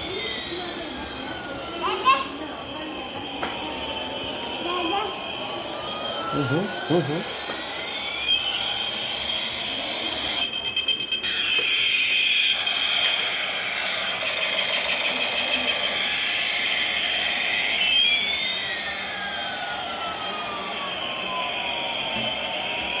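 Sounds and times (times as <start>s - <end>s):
helicopter turbine whine: 0.0s - 23.0s
tone gliding downward in pitch: 3.0s - 10.3s, 17.4s - 23.0s.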